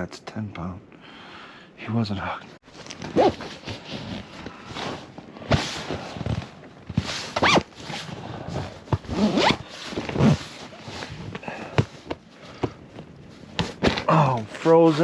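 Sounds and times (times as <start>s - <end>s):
zipper being pulled: 2.9s - 11.4s.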